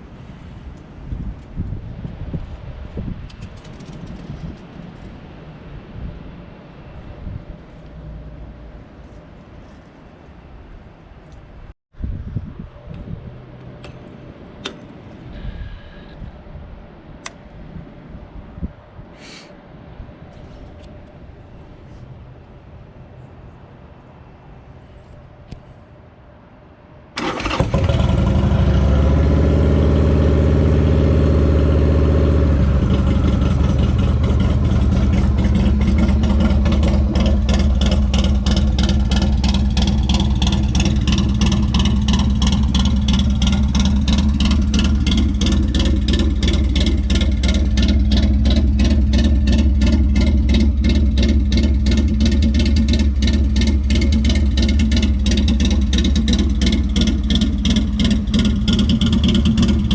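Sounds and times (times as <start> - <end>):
motorcycle engine idling: 27.2 - 59.9.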